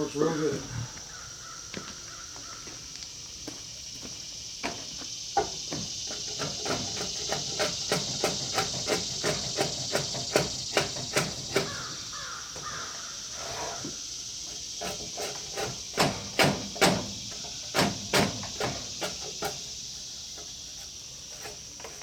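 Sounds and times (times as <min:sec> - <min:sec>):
steady high hiss: 0:00.0 - 0:22.0
hatchet chopping wood: 0:15.2 - 0:19.6.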